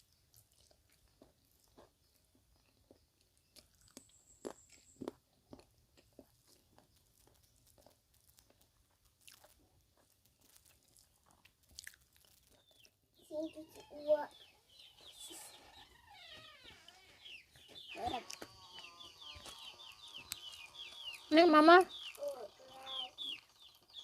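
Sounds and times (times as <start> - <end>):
person chewing and crunching: 0.0 - 13.0.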